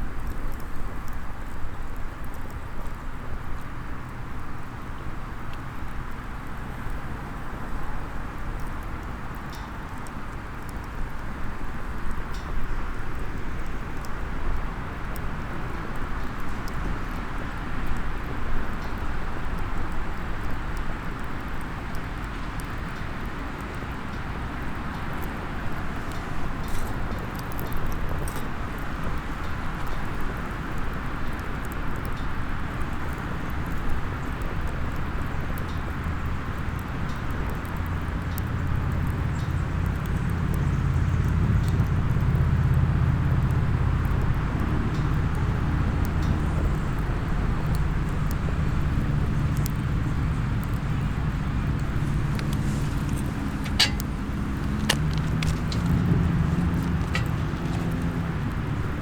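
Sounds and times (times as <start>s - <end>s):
wood fire popping: 22.0s - 59.0s
low engine hum: 34.1s - 59.0s.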